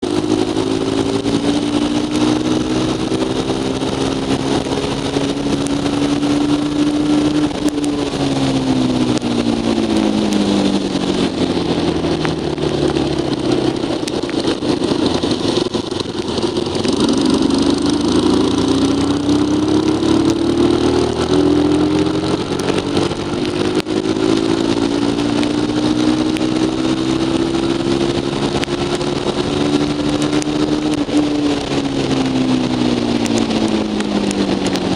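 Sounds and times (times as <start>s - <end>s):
motorcycle engine running: 0.0s - 34.9s
steady rushing noise: 0.0s - 34.9s.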